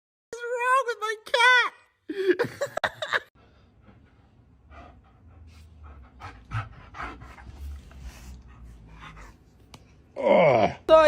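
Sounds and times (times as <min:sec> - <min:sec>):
animal panting: 0:03.8 - 0:09.4.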